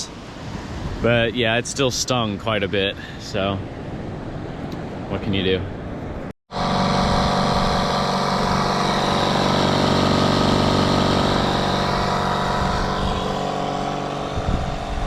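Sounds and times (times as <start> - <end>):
air compressor motor drone: 6.5 - 15.0.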